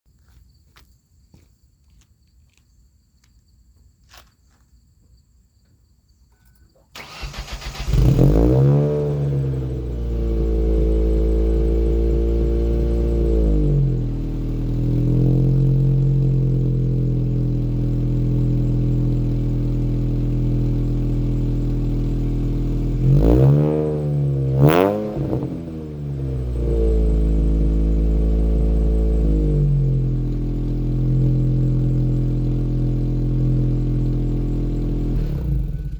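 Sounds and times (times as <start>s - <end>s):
car engine starting and idling: 6.9s - 35.9s
engine revving blips: 7.0s - 16.3s, 22.9s - 30.4s.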